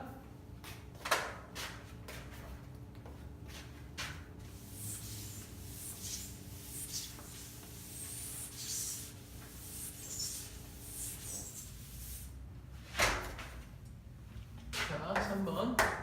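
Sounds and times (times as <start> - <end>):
low electrical hum: 0.0 - 16.0
scratchy pen strokes: 4.6 - 12.2.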